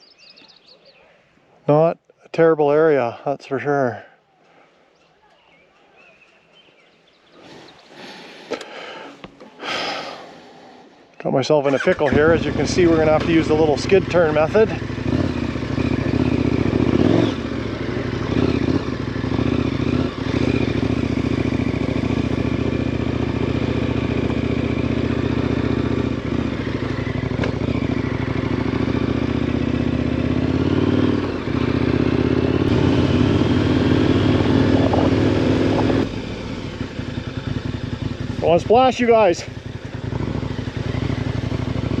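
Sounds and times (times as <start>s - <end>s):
motorcycle engine running: 11.7s - 42.0s.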